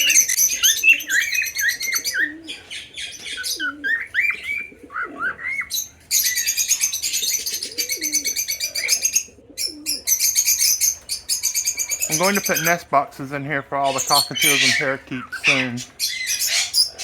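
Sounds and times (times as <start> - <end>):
doves cooing: 0.0 - 17.0
parakeets chattering: 0.0 - 17.0
whistled bird chirps: 3.4 - 6.8.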